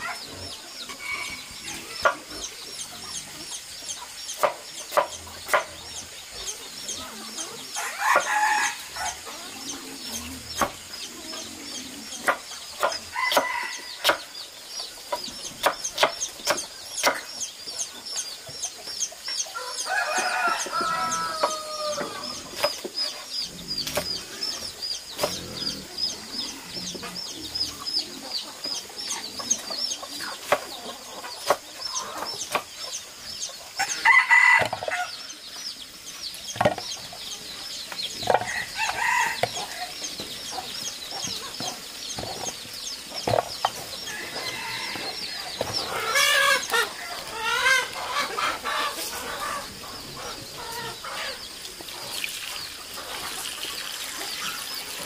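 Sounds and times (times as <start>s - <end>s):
chickens clucking: 0.0s - 55.0s
rooster-like call: 19.6s - 22.4s.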